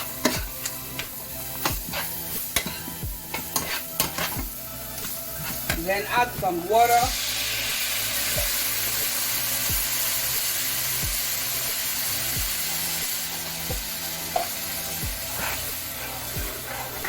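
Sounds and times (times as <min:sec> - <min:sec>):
background music with bass: 0:00.0 - 0:17.0
food sizzling in hot pan: 0:00.0 - 0:17.0
deep kick drum: 0:13.7 - 0:13.9.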